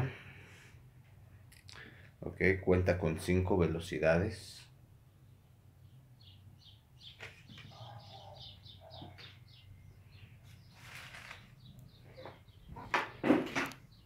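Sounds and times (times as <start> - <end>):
bird chirping: 5.0 - 14.0.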